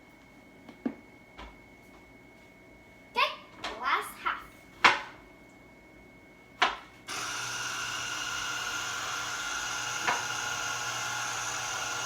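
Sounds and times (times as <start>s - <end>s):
electric juicer motor humming: 7.1s - 12.0s.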